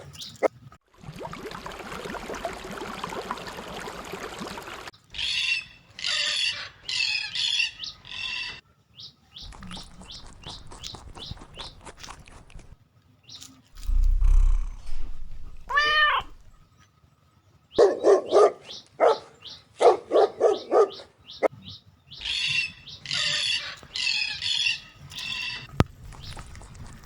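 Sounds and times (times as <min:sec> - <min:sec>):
harsh high-pitched calls: 0:13.9 - 0:16.6
dog barking: 0:17.8 - 0:21.2.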